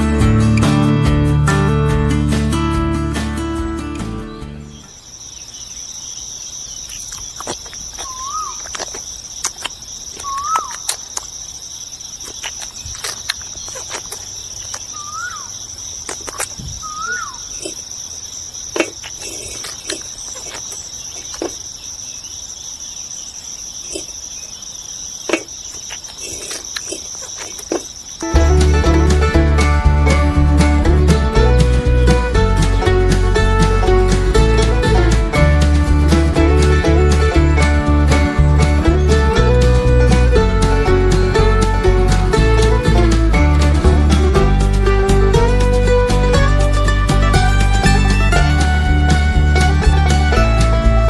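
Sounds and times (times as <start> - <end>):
insects chirring drone: 4.0 - 35.0
whistled notes: 14.9 - 15.5, 16.7 - 17.8.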